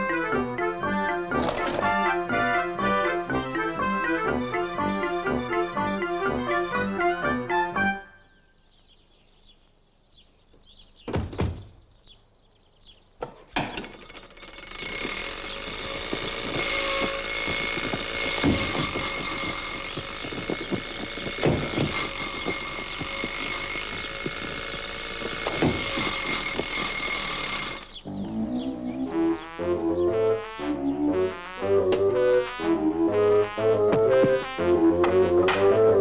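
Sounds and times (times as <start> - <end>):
heavy thumps: 13.2 - 27.9, 33.7 - 35.8
old car engine rattling: 13.2 - 28.0.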